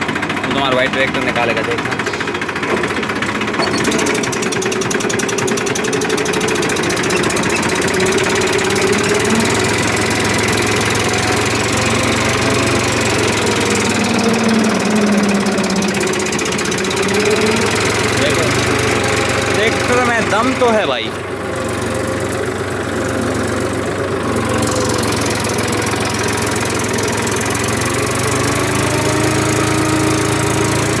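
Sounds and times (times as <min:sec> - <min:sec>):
tractor diesel engine under load: 0:00.0 - 0:31.0.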